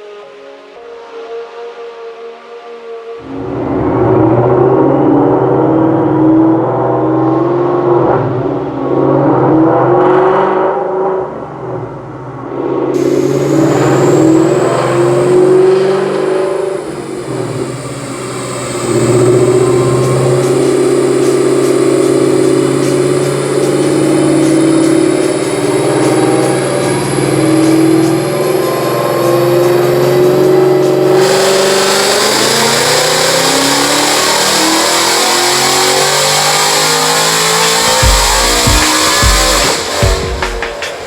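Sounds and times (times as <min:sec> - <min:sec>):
supercharger whine: 0:00.0 - 0:41.0
car engine running under load: 0:11.2 - 0:41.0.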